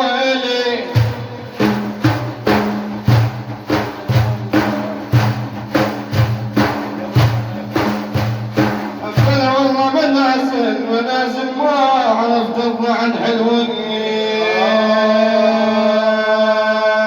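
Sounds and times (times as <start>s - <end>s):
frame drums with jingles: 0.8s - 10.0s.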